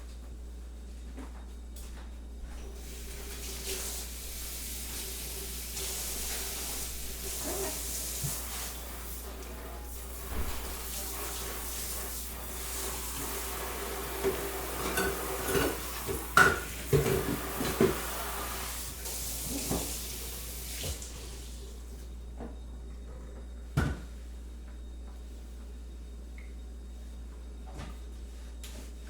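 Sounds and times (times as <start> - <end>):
kitchen tap running: 2.8 - 21.6
dishes and utensils clinking: 14.3 - 18.0.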